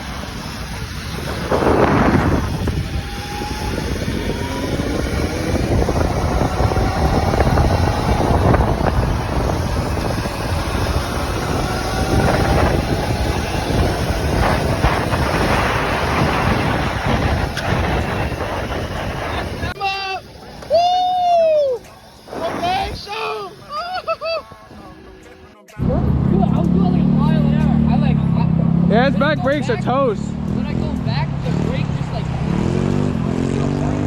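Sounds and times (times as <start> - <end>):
wind buffeting microphone: 0.0 - 19.8.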